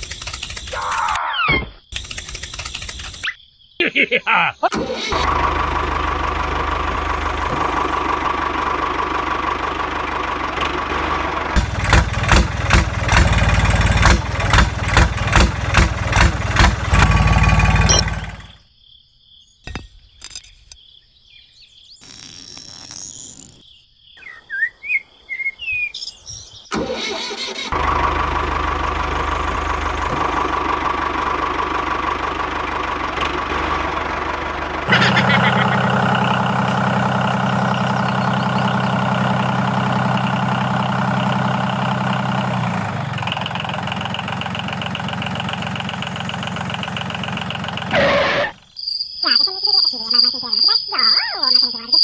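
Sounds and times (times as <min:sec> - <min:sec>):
toy tractor engine chugging: 0:00.0 - 0:00.8, 0:01.9 - 0:03.2, 0:04.7 - 0:18.6, 0:26.8 - 0:48.5
bird chirps: 0:19.4 - 0:26.8, 0:37.7 - 0:39.1, 0:48.5 - 0:52.0.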